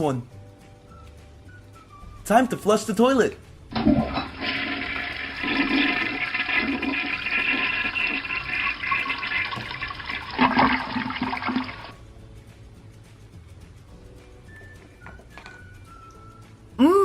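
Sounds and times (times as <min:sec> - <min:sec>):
toilet flush from small speaker: 0:03.7 - 0:12.0.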